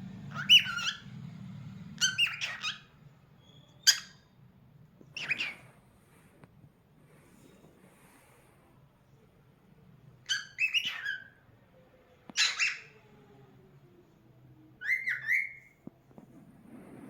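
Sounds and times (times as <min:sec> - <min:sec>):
cockatiel whistled chirps: 0:00.3 - 0:01.0, 0:02.0 - 0:04.3, 0:05.2 - 0:05.6, 0:10.3 - 0:11.4, 0:12.3 - 0:13.0, 0:14.8 - 0:15.8.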